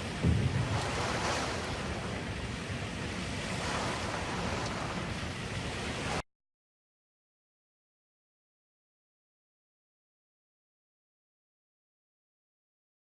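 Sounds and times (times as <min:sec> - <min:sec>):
steady rushing noise: 0:00.0 - 0:06.2
low thump: 0:00.2 - 0:01.7.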